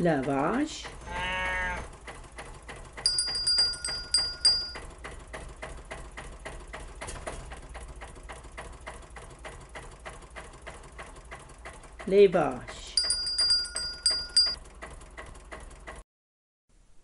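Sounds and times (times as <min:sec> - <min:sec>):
steady ticking: 0:02.0 - 0:05.7, 0:12.7 - 0:14.6
bell-like chimes: 0:03.1 - 0:04.8, 0:13.0 - 0:14.6.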